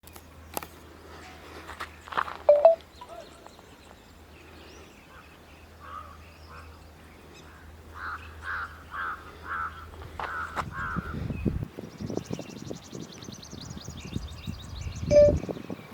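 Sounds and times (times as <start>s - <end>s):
birds calling: 2.0s - 12.6s
crow cawing: 8.0s - 11.1s.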